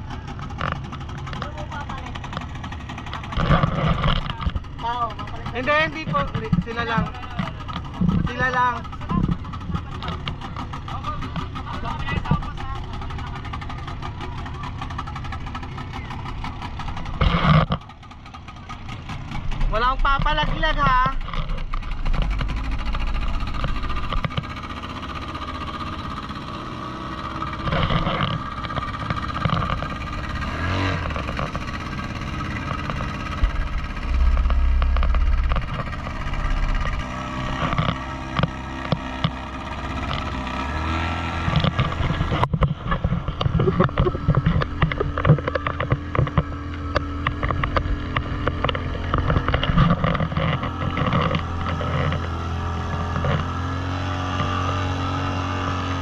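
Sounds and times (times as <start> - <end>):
outboard motorboat engine: 0.0 - 56.0
wind rumbling on microphone: 19.3 - 25.9, 28.0 - 40.4.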